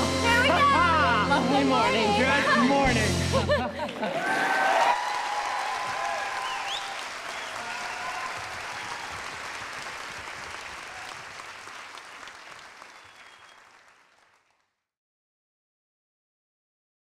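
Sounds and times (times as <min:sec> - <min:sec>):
audience applauding: 0:03.8 - 0:14.8
people cheering: 0:03.9 - 0:14.0.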